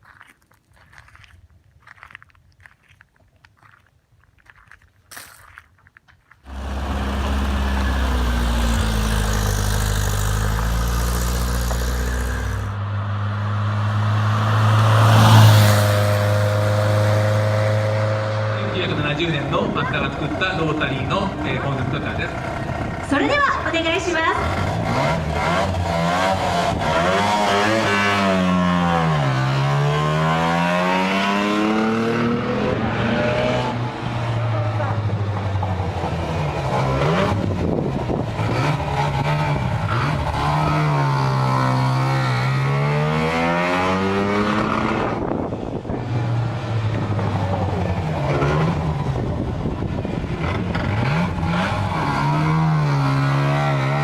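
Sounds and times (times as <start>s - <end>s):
car engine running: 6.5s - 12.8s
rotary engine revving: 6.5s - 12.8s, 24.4s - 34.3s, 36.1s - 45.4s, 46.7s - 54.0s.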